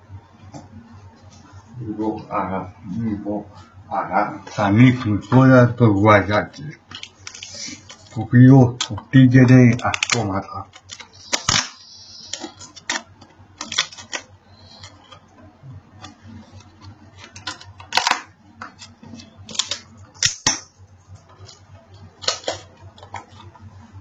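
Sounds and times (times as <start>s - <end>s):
low steady hum: 0.0s - 24.0s
cardboard and plastic rustling: 4.6s - 20.0s
sharp clicks of packaging: 6.9s - 8.2s, 8.8s - 15.2s, 16.0s - 20.7s, 21.3s - 23.5s.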